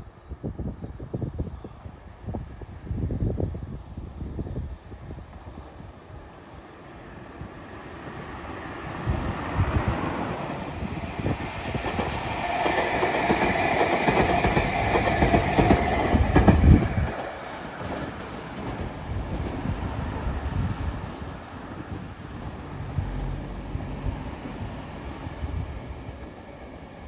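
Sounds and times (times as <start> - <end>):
train whine: 0.0 - 27.0
train wheels rumbling and clacking: 9.1 - 21.8.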